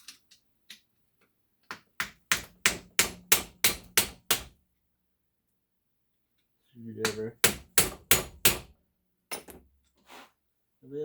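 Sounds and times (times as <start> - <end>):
hammer striking metal: 7.0 - 8.7.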